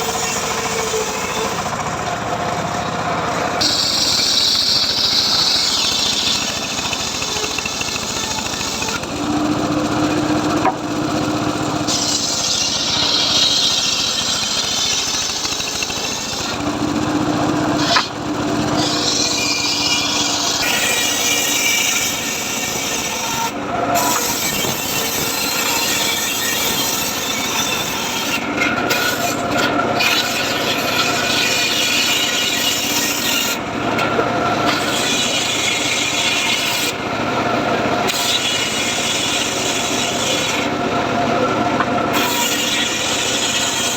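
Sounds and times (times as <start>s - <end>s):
circular saw cutting log: 0.0s - 43.9s.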